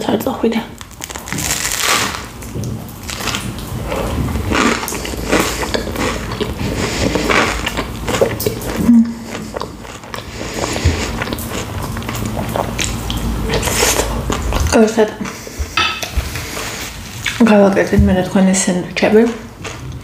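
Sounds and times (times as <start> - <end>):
crunchy chewing: 3.0 - 17.4.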